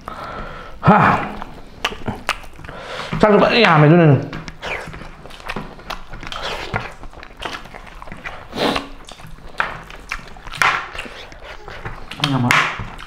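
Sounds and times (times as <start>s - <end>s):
wet chewing and lip-smacking: 1.3s - 13.0s.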